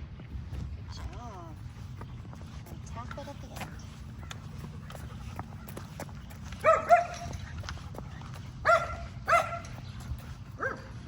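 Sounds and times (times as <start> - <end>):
dog barking: 6.6 - 7.3, 8.6 - 9.7, 10.6 - 10.9.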